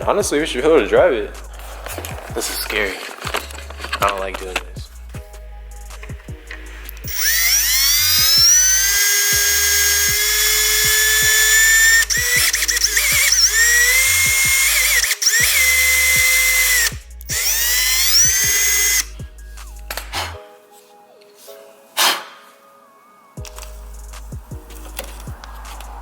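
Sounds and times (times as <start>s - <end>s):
power drill whining: 6.9s - 19.2s.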